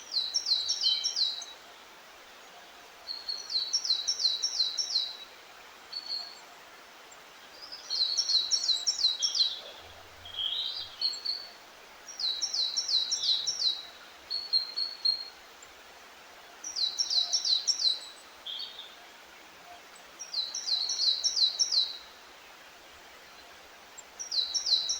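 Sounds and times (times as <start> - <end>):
songbird singing: 0.0 - 15.8, 16.4 - 24.9
faint background hiss: 0.0 - 24.9.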